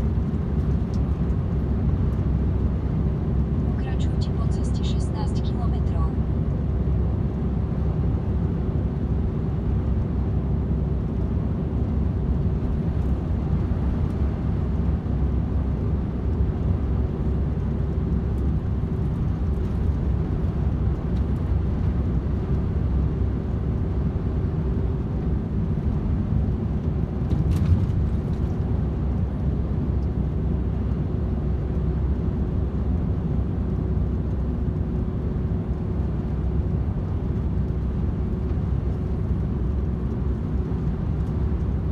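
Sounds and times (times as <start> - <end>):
truck engine drone: 0.0 - 41.9
faint steady hum: 3.7 - 6.3.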